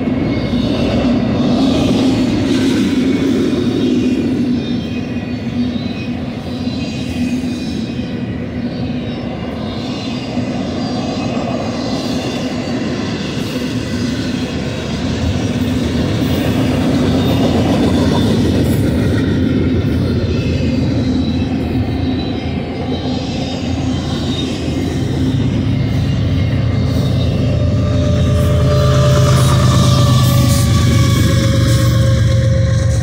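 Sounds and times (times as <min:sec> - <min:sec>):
freight train rolling past: 0:00.0 - 0:33.0.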